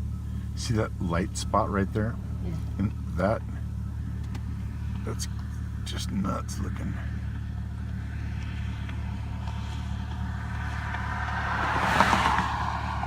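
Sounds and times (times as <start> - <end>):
low vehicle hum: 0.0 - 13.0
vehicle passing: 4.5 - 13.0.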